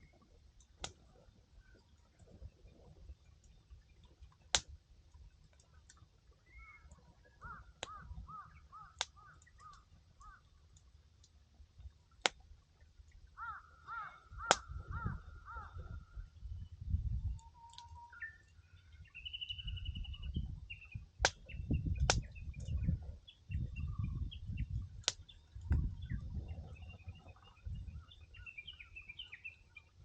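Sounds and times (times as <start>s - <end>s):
firewood crackling and popping: 0.6s - 8.1s, 8.9s - 13.3s, 14.4s - 14.9s, 21.0s - 23.1s, 24.9s - 26.0s
bird calling repeated notes: 6.4s - 10.5s, 13.4s - 16.2s.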